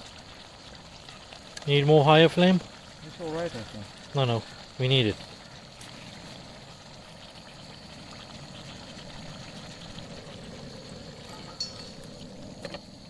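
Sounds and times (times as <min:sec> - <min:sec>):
cooking flame roaring: 0:00.0 - 0:13.0
metallic clink: 0:11.3 - 0:12.0.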